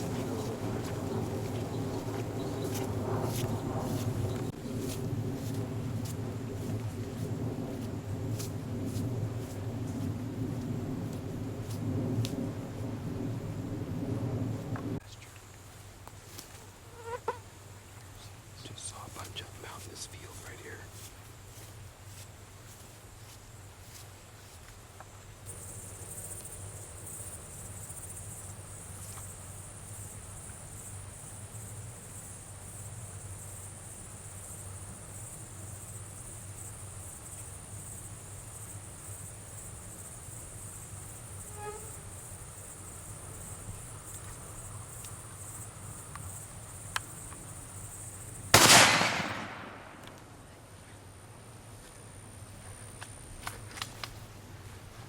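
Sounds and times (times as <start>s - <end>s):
night insects chorus: 0.0s - 55.0s
loud gunshot with echo: 48.6s - 50.2s.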